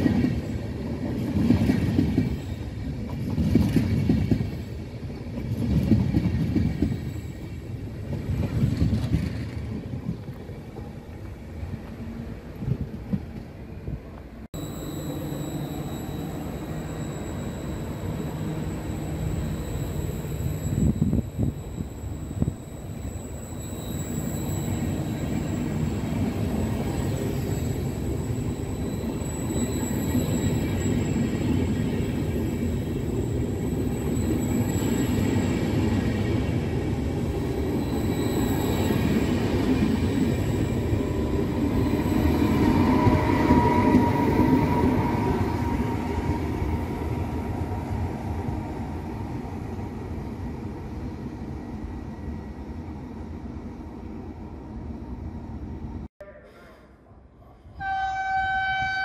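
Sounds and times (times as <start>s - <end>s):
train wheels rumbling on rail: 0.0s - 14.5s, 15.2s - 55.0s
ringing wheel squeal: 14.6s - 49.1s.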